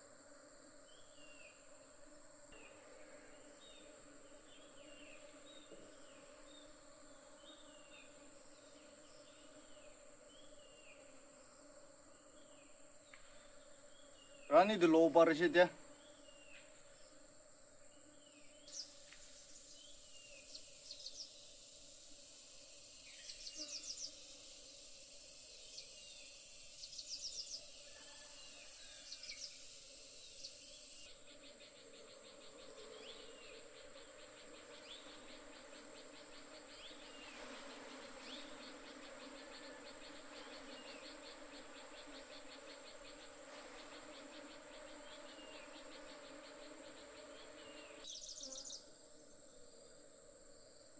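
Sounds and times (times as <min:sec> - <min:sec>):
insects shrilling: 0:18.7 - 0:48.8
bees buzzing: 0:29.3 - 0:48.8.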